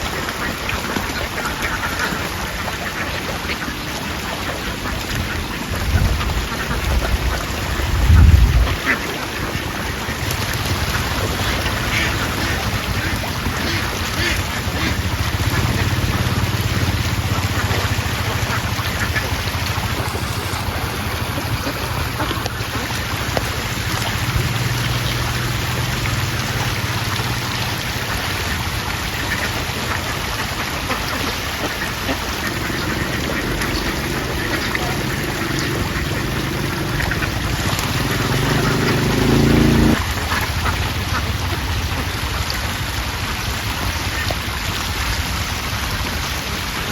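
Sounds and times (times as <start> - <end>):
ducks quacking: 0.0 - 24.6, 29.1 - 42.1.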